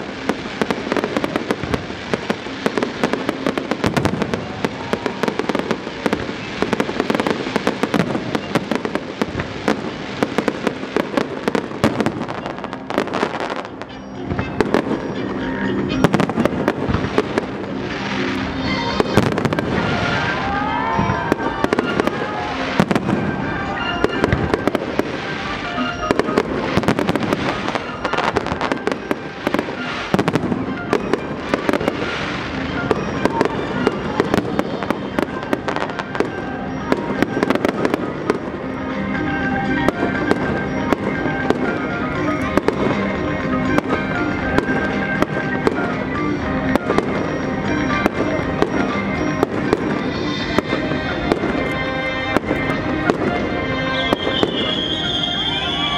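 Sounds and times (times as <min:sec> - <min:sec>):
fireworks bangs and crackling: 0:00.0 - 0:55.9
music playing: 0:00.0 - 0:55.9.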